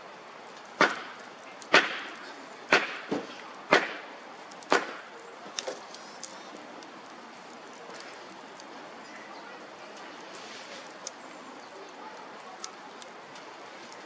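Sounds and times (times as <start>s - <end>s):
axe chopping firewood: 0.8s - 5.9s.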